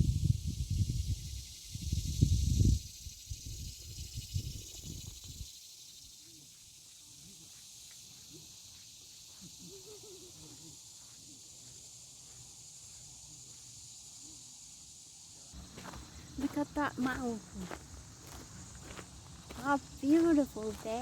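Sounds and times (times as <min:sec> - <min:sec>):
wind buffeting microphone: 0:00.0 - 0:05.4
insect chorus hissing: 0:00.0 - 0:21.0.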